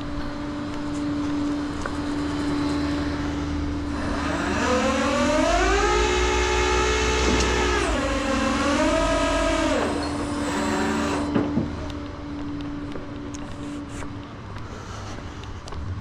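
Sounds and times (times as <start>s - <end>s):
siren wailing: 4.0s - 11.3s.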